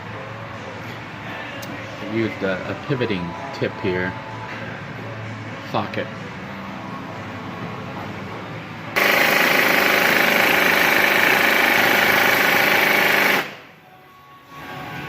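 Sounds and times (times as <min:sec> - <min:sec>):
impact wrench hammering: 0:09.0 - 0:13.6.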